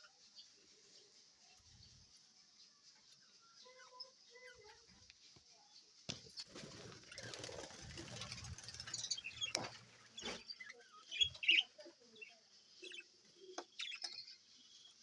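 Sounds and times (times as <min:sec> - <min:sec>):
budgerigars chirping: 0:08.7 - 0:11.7.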